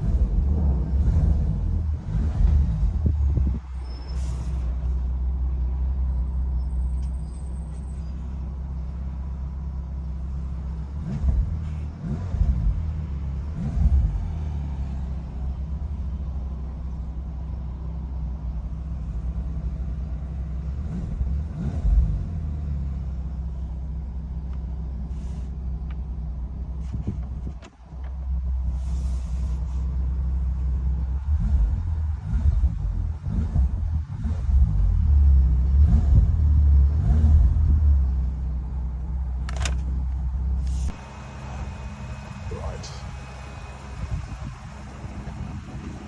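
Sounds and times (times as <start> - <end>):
engine revving: 0.0 - 3.7, 10.8 - 15.9, 20.6 - 23.0, 31.0 - 38.4, 40.6 - 46.0
car engine idling: 0.0 - 35.8, 37.5 - 46.0.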